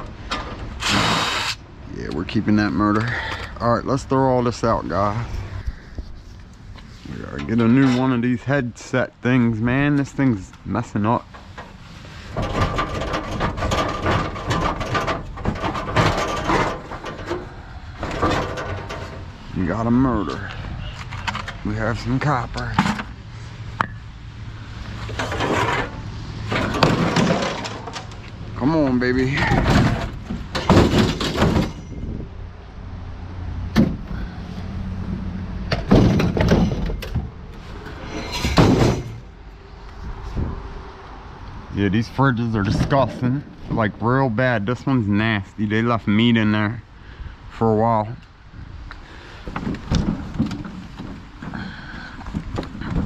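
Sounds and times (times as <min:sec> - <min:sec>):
scrap metal clanking and scraping: 0:00.0 - 0:01.6, 0:02.2 - 0:03.7, 0:04.5 - 0:08.9, 0:09.6 - 0:32.3, 0:35.6 - 0:40.5, 0:49.1 - 0:53.0.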